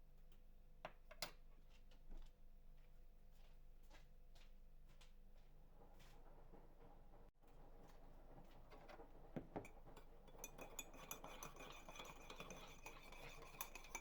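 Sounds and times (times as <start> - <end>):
spoon clinking in cup: 9.4 - 14.0.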